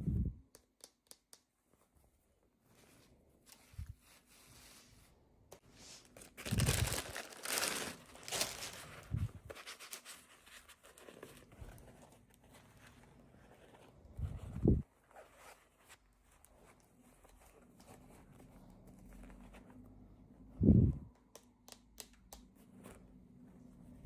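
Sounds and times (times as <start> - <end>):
packaging tearing and crinkling: 6.2 - 9.0.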